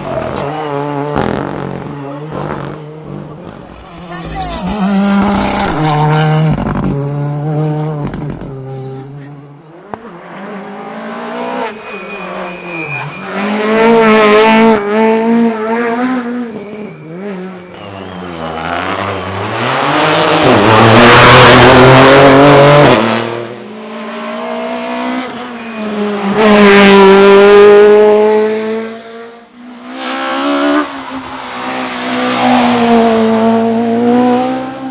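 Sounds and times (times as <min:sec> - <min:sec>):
rally car engine revving: 0:00.0 - 0:34.9
tyre squeal: 0:11.1 - 0:21.9, 0:24.7 - 0:28.1.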